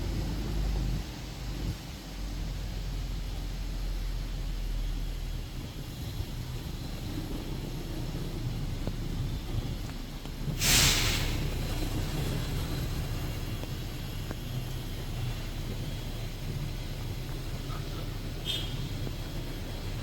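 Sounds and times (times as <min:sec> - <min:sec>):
bus engine rumbling: 0:00.0 - 0:20.0
loud air hiss: 0:10.4 - 0:20.0.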